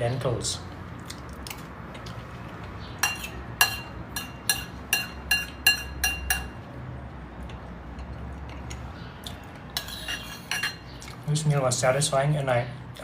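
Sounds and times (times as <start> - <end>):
cutlery clinking against a bowl: 3.0 - 6.7, 9.7 - 11.2.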